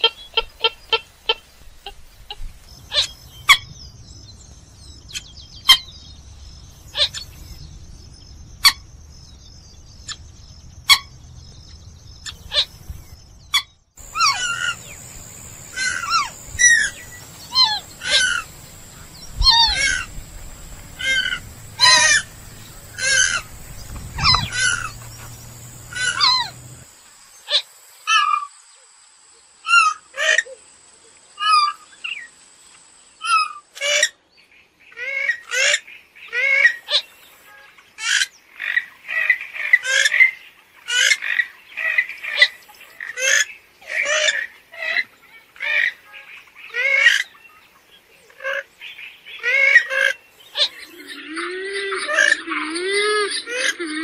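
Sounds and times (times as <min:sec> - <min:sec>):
bird harsh downward-sliding calls: 0:14.0 - 0:26.9
faint high whine: 0:14.0 - 0:29.5.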